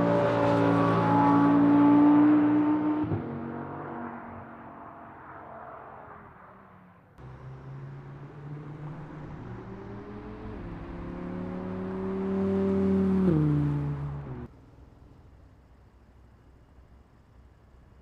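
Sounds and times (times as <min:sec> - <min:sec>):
sports car engine accelerating: 0:07.2 - 0:14.5.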